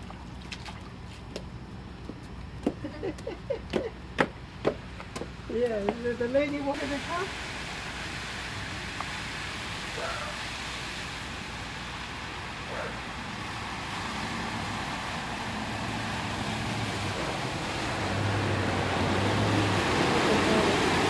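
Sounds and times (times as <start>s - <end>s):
road and water rushing: 0.0s - 21.0s
vehicle engine hum: 11.1s - 21.0s.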